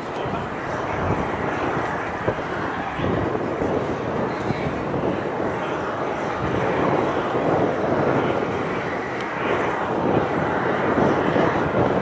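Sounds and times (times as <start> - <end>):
jet airliner engines rumbling: 0.0 - 12.0.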